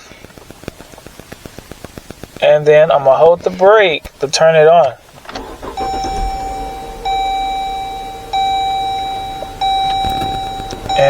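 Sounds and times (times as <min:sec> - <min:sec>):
car engine running: 0:05.0 - 0:11.0
dashboard warning chime: 0:05.3 - 0:11.0.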